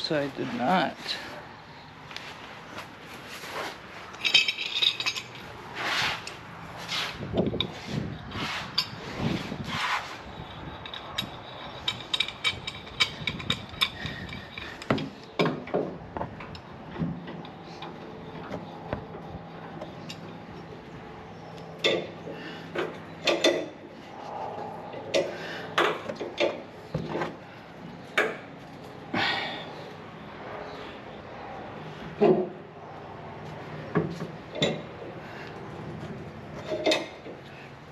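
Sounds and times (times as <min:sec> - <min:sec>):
short scrapes: 0:05.8 - 0:07.2, 0:07.8 - 0:10.2
metal clanks and knocks: 0:32.1 - 0:32.6, 0:36.0 - 0:37.4.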